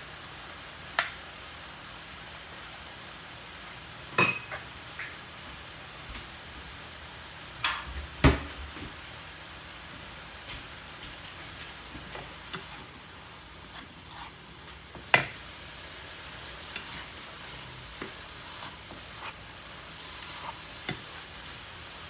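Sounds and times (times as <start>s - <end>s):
utensils clinking on dishes: 4.1s - 4.7s.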